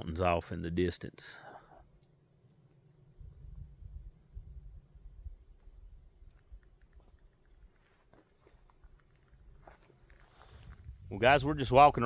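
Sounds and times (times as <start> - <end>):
insects chirring: 0.0 - 12.0
low rumbles: 10.6 - 12.0.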